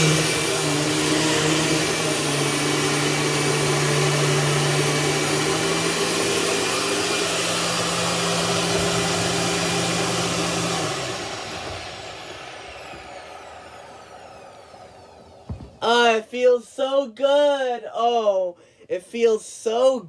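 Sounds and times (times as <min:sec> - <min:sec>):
vacuum cleaner motor running: 0:00.0 - 0:15.8.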